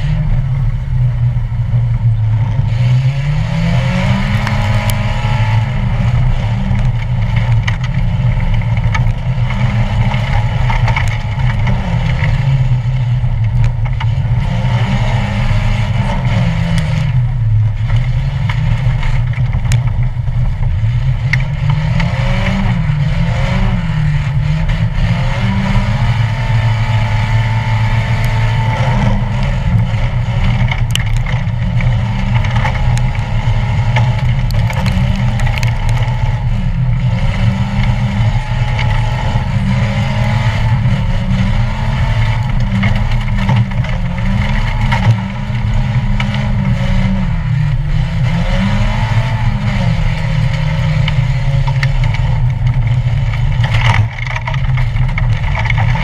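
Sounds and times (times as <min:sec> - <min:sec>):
race car engine revving: 0:00.0 - 0:56.0
car knocks and rattles: 0:03.6 - 0:56.0.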